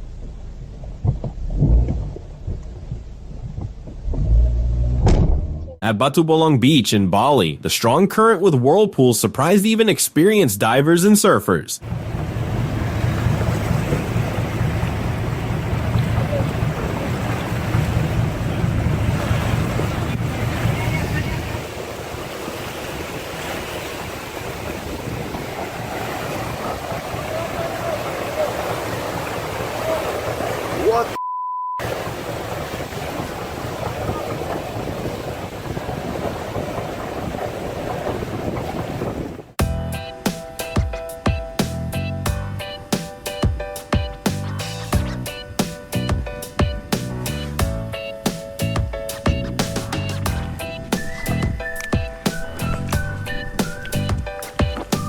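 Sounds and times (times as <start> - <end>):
wind buffeting microphone: 0.0 - 5.8, 11.8 - 31.2, 31.8 - 39.6, 48.9 - 55.0
ocean surf and rushing water: 11.8 - 31.2, 31.8 - 41.9, 42.6 - 55.0.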